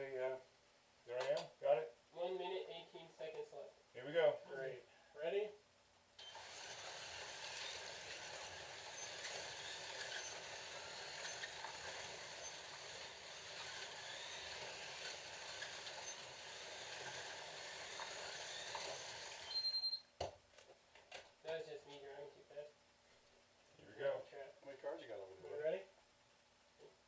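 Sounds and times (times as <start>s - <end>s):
slot car motors whirring: 6.2s - 19.6s.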